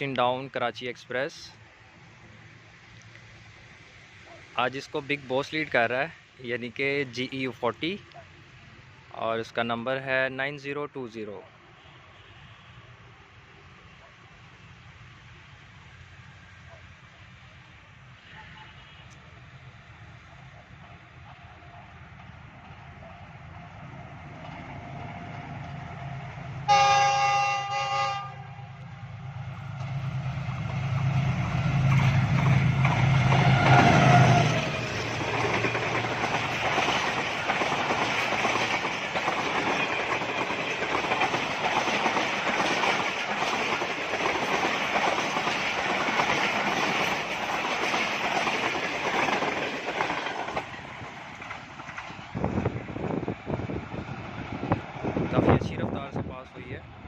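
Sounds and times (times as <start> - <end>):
train horn blast: 26.7 - 28.8
wheels rattling on rails: 29.2 - 56.5.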